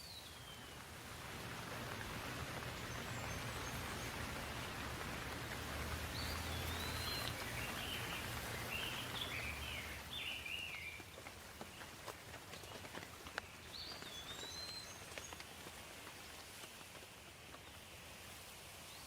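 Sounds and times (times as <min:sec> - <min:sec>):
bird chirping: 0:00.0 - 0:00.8, 0:02.2 - 0:11.9, 0:13.4 - 0:15.6
steady rain: 0:00.0 - 0:19.0.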